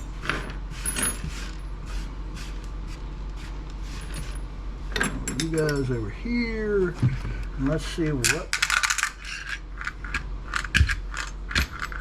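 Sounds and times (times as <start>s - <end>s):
steady low hum: 0.0s - 12.0s
small parts clicking and clinking: 8.2s - 12.0s.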